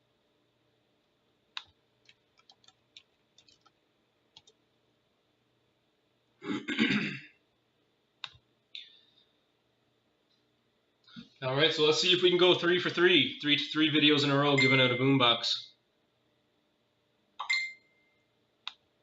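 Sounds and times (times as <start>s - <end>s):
person sighing or clearing throat: 6.4s - 7.4s.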